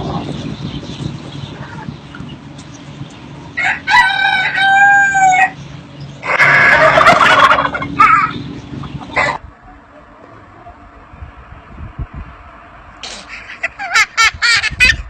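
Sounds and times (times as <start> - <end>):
rooster crowing: 3.6 - 5.6
rooster squawks: 6.2 - 8.4.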